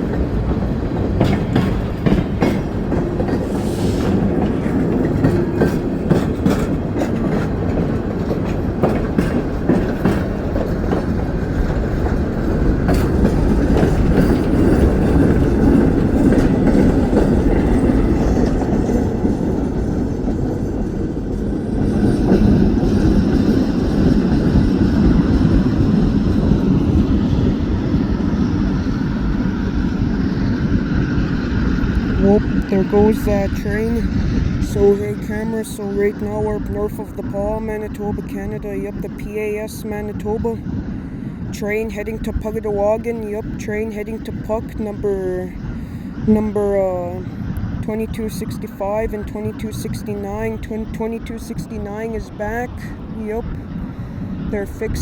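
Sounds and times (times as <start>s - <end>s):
train wheels clicking over rail joints: 0.0s - 27.2s
train rumble: 0.0s - 55.0s.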